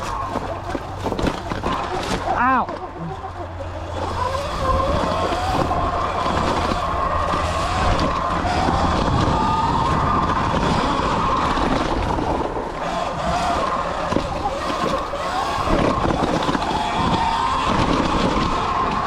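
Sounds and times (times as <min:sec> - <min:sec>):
electric dirt bike motor whining: 0:00.0 - 0:19.0
knocks from rough trail: 0:00.0 - 0:19.0
wind rush on microphone: 0:00.0 - 0:19.0.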